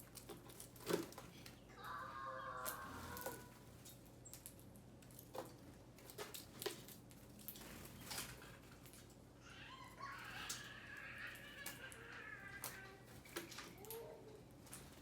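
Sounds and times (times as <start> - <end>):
birds chattering calls: 1.2 - 4.4.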